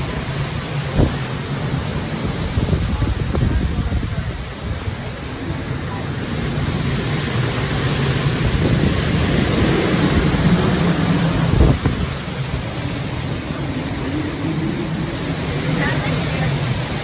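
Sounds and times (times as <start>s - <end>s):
strong wind gusting on microphone: 0.0s - 17.0s.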